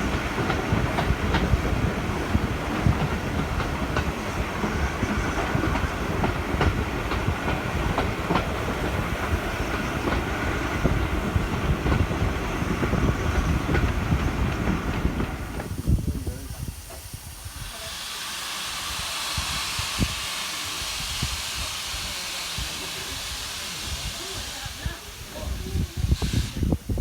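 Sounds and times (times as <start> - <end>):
railway carriage rumble: 0.0 - 27.0.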